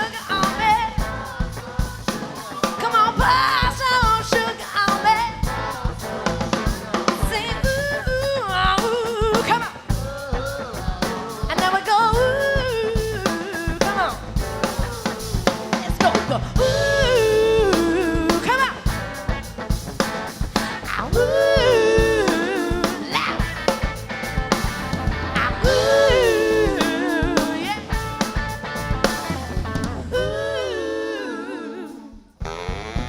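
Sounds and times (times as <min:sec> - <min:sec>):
soul-funk band playing: 0:00.0 - 0:33.0
person singing wordless vocal runs: 0:21.0 - 0:23.7, 0:25.4 - 0:28.2.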